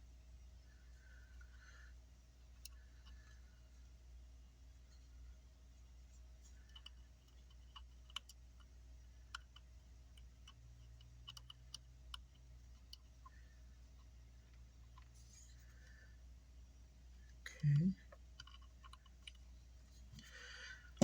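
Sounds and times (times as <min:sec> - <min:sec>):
low steady hum: 0:00.0 - 0:21.0
small clicks and taps of tools: 0:02.5 - 0:03.4, 0:06.4 - 0:15.1, 0:17.6 - 0:19.4.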